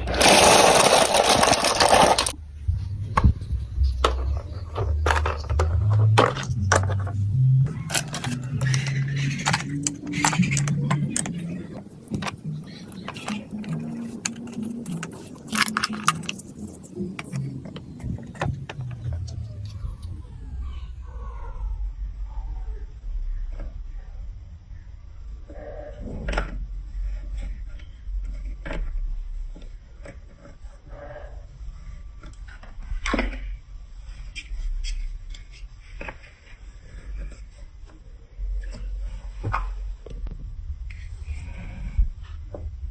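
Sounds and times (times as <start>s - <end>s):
marbles clattering down a track: 0.0s - 2.4s
plastic blocks clicking and knocking: 0.0s - 2.4s, 4.0s - 19.7s
low steady rumble: 0.0s - 42.9s.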